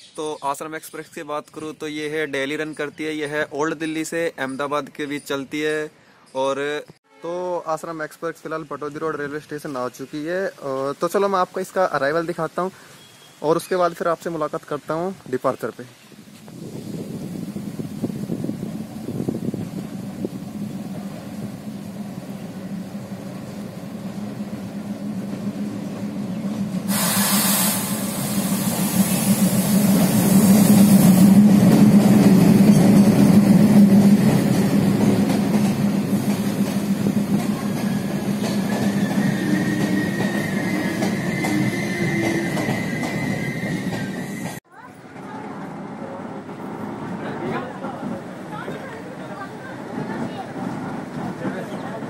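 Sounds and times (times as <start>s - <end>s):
train coaches rolling by: 16.3s - 52.0s
diesel locomotive engine drone: 16.4s - 44.6s
high brake wheel squeal: 37.8s - 44.6s.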